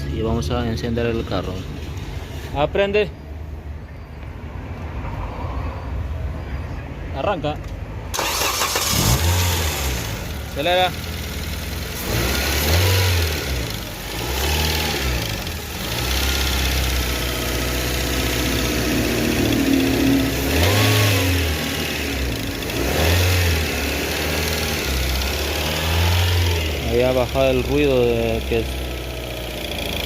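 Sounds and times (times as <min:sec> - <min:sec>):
car engine revving and idling: 0:08.1 - 0:30.0.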